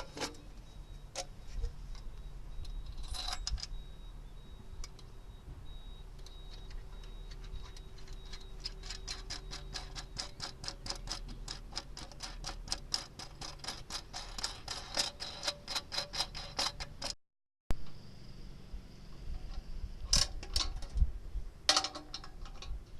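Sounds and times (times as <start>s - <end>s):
sharp mechanical clicks: 6.2s - 17.2s.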